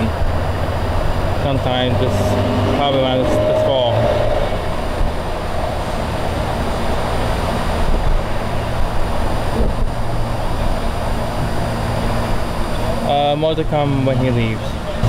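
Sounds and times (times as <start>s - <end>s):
electric train rumble and hiss: 0.0s - 15.0s.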